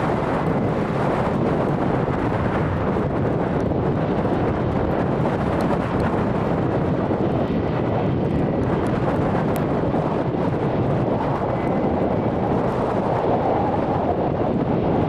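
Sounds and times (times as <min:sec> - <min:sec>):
faint engine whine: 0:00.0 - 0:15.0
jet engines running: 0:00.0 - 0:15.0
wind buffeting microphone: 0:00.0 - 0:15.0.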